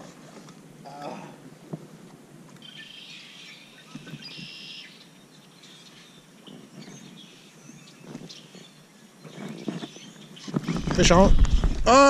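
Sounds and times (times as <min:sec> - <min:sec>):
birds chirping: 0:02.6 - 0:12.0.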